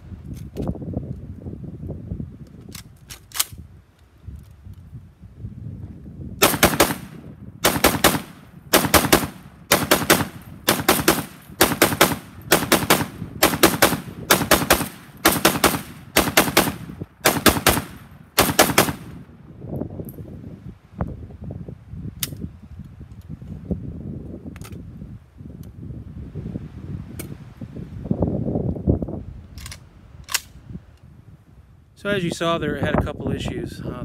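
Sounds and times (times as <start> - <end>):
wind rumble on microphone: 0.0 - 34.0
rifle shots: 6.4 - 19.2.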